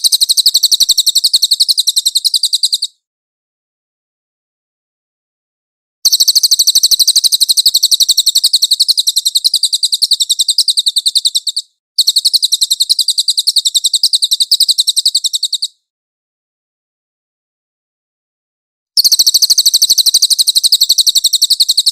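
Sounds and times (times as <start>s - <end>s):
songbird trilling: 0.0s - 3.0s, 6.1s - 15.8s, 19.0s - 21.9s.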